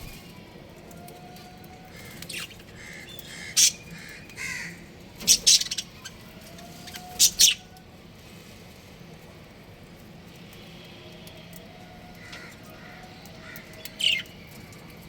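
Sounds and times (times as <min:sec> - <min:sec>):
budgerigars chirping: 0:03.2 - 0:06.0, 0:06.8 - 0:07.6.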